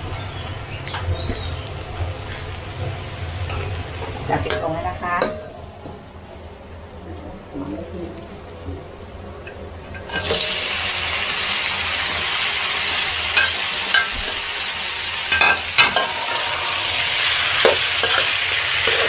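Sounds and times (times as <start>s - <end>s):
meat sizzling in hot oil: 10.1s - 19.0s.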